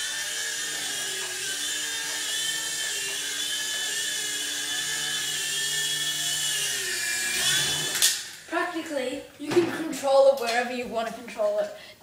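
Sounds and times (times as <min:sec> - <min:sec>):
toy helicopter motors whining: 0:00.0 - 0:08.5.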